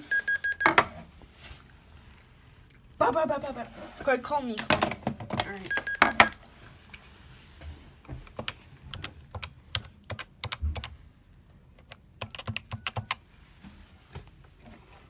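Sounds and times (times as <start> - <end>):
computer keyboard keys clicking: 8.4 - 10.9, 11.8 - 13.2.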